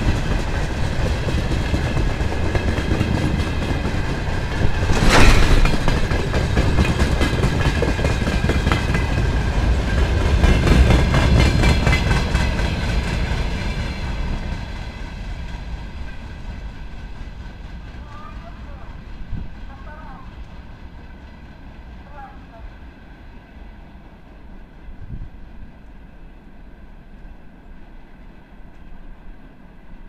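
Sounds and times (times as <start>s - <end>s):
freight train wheels clattering: 0.0s - 22.1s
high ringing of rails: 0.0s - 30.0s
loud bang: 4.8s - 6.2s.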